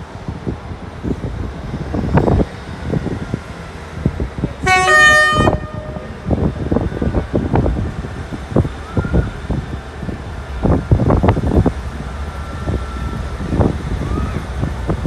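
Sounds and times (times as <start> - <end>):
train horn toot: 4.6 - 6.1.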